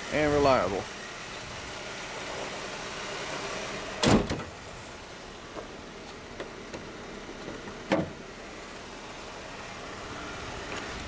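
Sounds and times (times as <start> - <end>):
car hood slammed shut: 4.0 - 4.5, 7.9 - 8.2.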